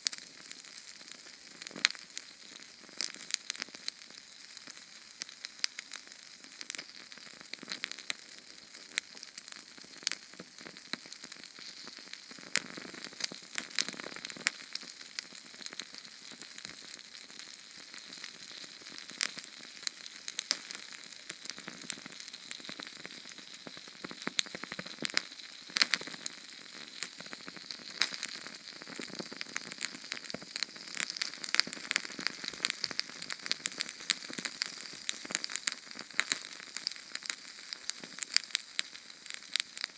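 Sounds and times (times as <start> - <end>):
flame crackling and popping: 0.0 - 39.9
small flame hissing: 18.0 - 39.9.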